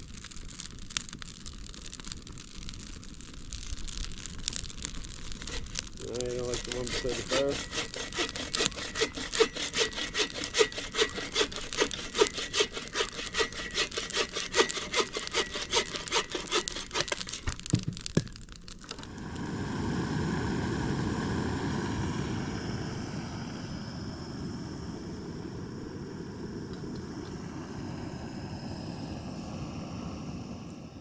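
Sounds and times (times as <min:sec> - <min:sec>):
hand saw cutting wood: 0:05.4 - 0:17.7
low drone: 0:18.9 - 0:31.0.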